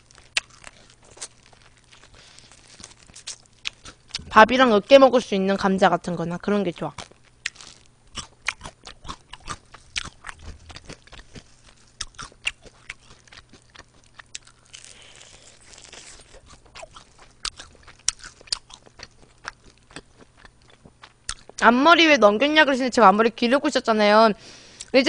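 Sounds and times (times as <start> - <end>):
crunching of crispy chicken wings: 0.0 - 4.3, 7.0 - 21.6.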